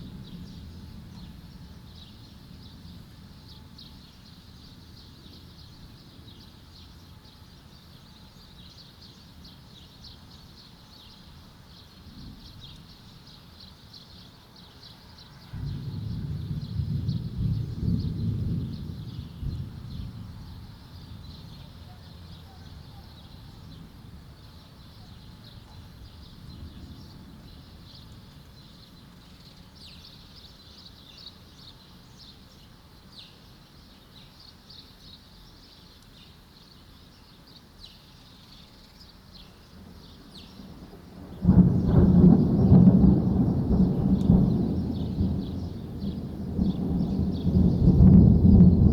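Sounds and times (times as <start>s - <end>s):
small birds chirping: 0.2s - 48.9s
loud thunderclap: 15.6s - 20.7s, 40.7s - 48.9s
thunder rumbling: 15.6s - 22.4s, 40.2s - 48.9s.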